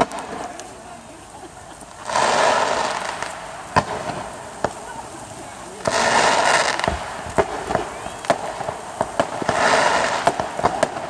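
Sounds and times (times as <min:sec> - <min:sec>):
firework bangs: 0:00.0 - 0:11.0
firework crackling burst: 0:00.0 - 0:11.0.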